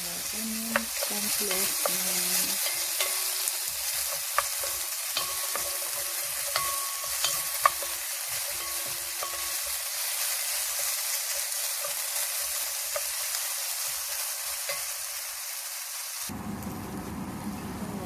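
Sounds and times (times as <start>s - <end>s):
onions sizzling in a pan: 0.0s - 18.0s
utensil clinking against pan: 2.6s - 10.0s.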